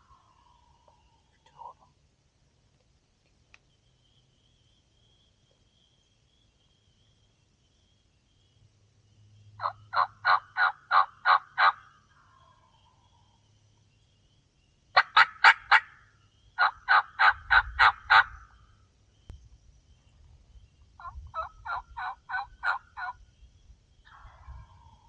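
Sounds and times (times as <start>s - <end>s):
turkey yelps: 9.6s - 11.8s, 15.0s - 16.0s, 16.6s - 18.5s, 21.0s - 23.2s.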